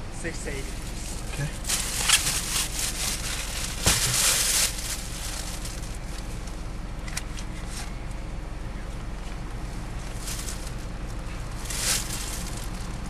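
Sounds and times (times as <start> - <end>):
car engine idling: 0.0 - 13.0
short rustle: 10.0 - 12.8.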